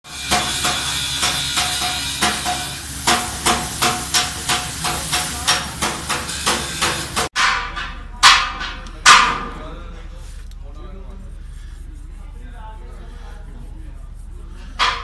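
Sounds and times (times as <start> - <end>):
steady hiss: 0.1 - 7.3
hammer blows on metal: 0.1 - 9.5.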